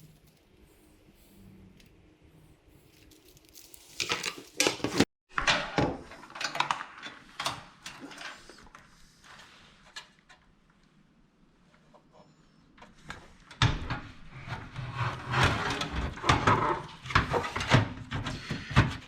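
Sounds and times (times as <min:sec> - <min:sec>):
rustling and scraping of cables: 0:02.7 - 0:05.1.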